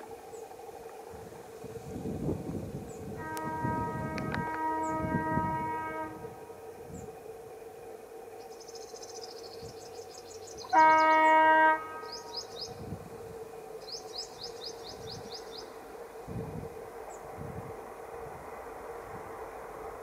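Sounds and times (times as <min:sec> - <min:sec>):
locomotive horn blast: 0:03.1 - 0:06.5, 0:10.6 - 0:12.4
small birds chirping: 0:08.4 - 0:11.4, 0:12.0 - 0:12.8, 0:13.8 - 0:15.9.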